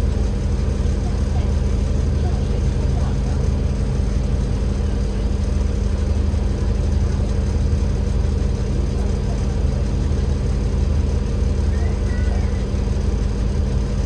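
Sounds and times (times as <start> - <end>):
bus diesel engine droning: 0.0 - 14.0.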